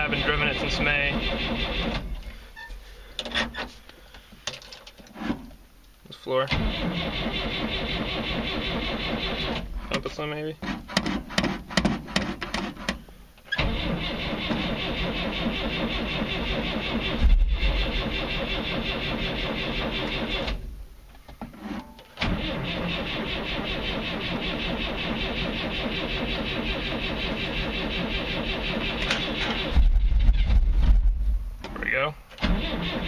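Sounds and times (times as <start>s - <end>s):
car engine cranking on starter: 0.0s - 2.3s, 6.5s - 10.0s, 13.5s - 20.6s, 22.2s - 29.9s, 32.4s - 33.0s.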